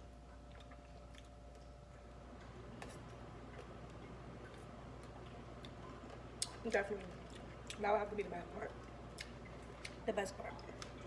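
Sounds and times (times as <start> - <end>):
low steady hum: 0.0 - 11.0
chewing mouth clicks: 0.3 - 2.1, 8.8 - 10.0.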